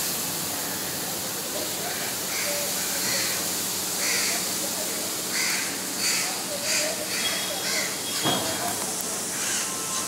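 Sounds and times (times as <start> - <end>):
steady background hiss: 0.0 - 10.0
birds calling: 5.3 - 10.0.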